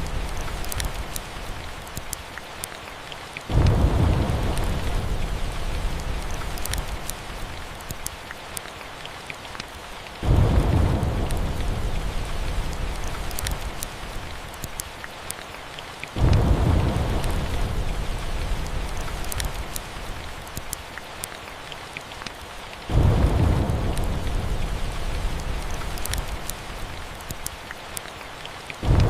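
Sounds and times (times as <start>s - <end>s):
wood fire crackling: 0.0s - 15.5s, 16.1s - 29.0s
steady rain: 0.0s - 29.0s
rolling thunder: 3.5s - 7.0s, 10.2s - 14.1s, 16.2s - 19.6s, 22.9s - 26.8s.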